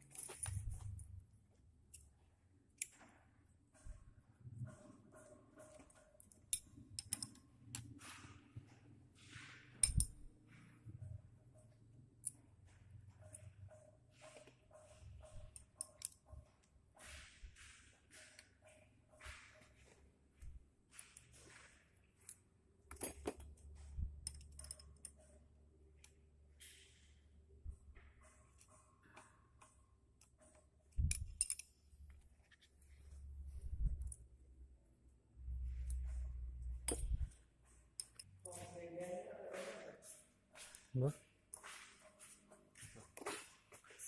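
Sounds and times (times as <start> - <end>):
tools clicking on engine parts: 29.6 - 31.8.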